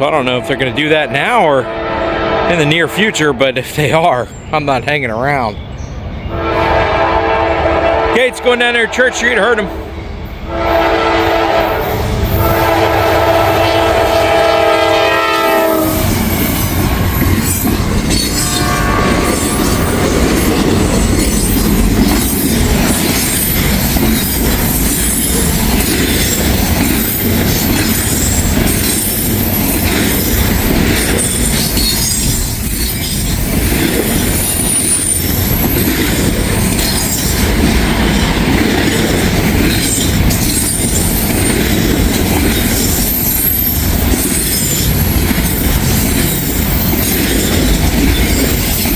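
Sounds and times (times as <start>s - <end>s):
train rumble: 0.0s - 48.9s
train air horn: 0.3s - 3.3s, 6.3s - 16.2s, 18.4s - 20.0s
wheels clattering over rail joints: 16.0s - 48.9s
thin high wheel squeal: 42.8s - 44.9s.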